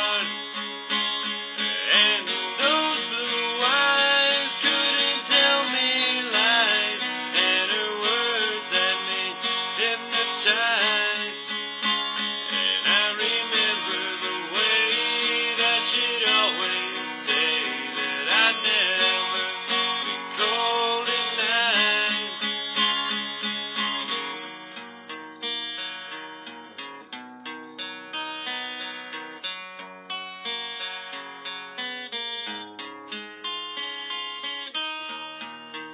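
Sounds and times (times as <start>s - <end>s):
strummed acoustic guitar: 0.0s - 35.9s.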